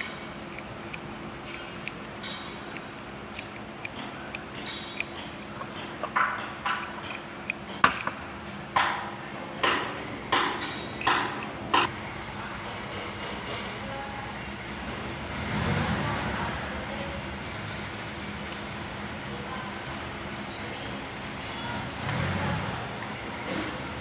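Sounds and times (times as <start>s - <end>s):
metal tools clinking: 0.0s - 6.2s.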